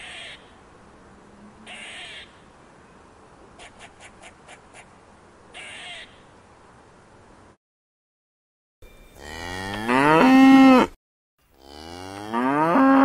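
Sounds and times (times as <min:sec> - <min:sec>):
squirrel alarm calls: 0:01.7 - 0:02.4, 0:05.6 - 0:06.2.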